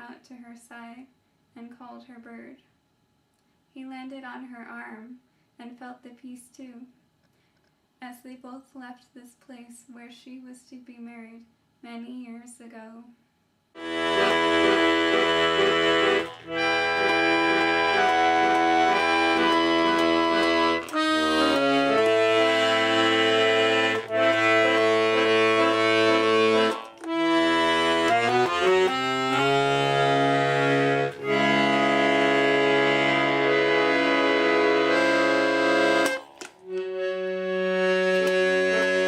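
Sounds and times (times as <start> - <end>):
accordion chords: 13.8 - 39.0.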